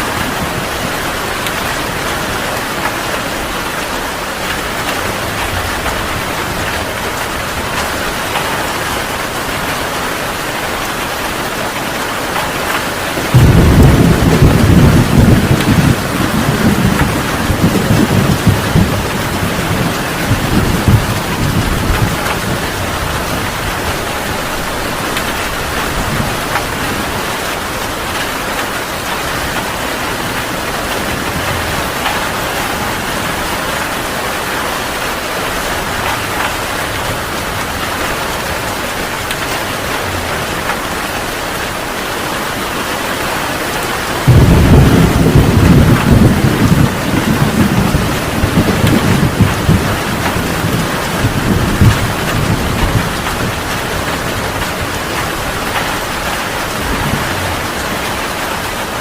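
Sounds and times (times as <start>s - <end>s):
heavy rain hissing: 0.0s - 59.0s
thunder rumbling: 10.7s - 42.9s, 44.0s - 59.0s
loud thunder clap: 12.4s - 27.2s, 44.2s - 58.4s.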